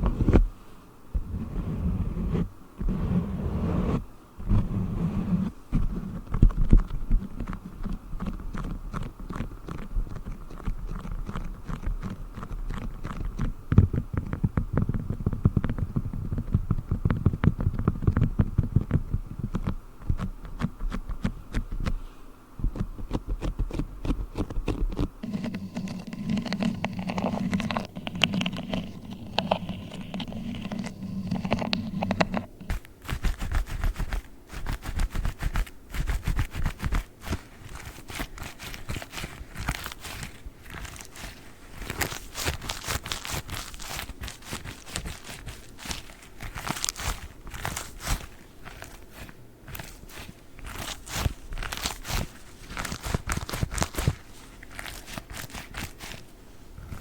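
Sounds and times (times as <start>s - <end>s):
gloves rubbing and snapping: 5.4s - 22.0s, 22.7s - 57.0s
wax sheet crinkling: 22.8s - 57.0s.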